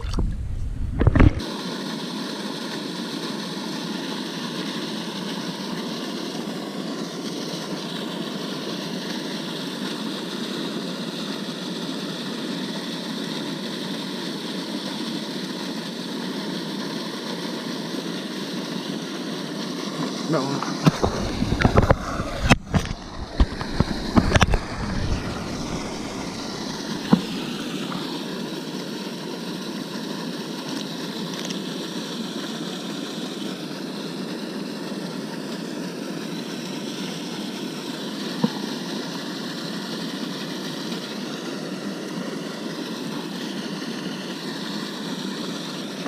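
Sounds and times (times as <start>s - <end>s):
knocks and thumps: 0.0s - 1.4s
small boat motor running: 18.9s - 31.7s.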